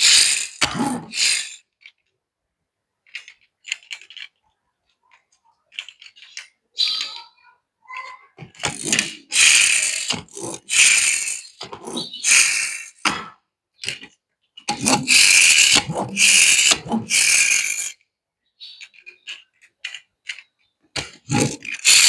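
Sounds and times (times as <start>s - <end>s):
metal toy cars clicking and rattling: 0.0s - 2.2s, 3.0s - 7.3s, 7.9s - 18.0s, 18.6s - 22.0s.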